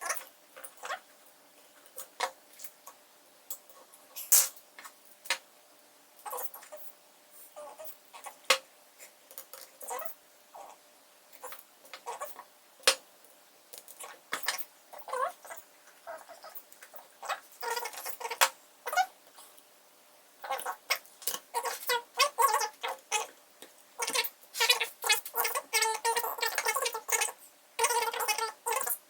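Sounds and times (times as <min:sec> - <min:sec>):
small parts clicking and scraping: 0:01.8 - 0:05.4.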